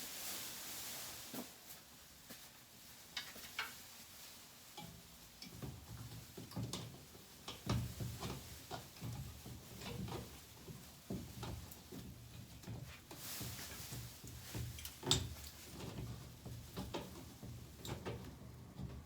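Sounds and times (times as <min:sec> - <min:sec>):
light clicks and knocks: 0:04.7 - 0:19.0.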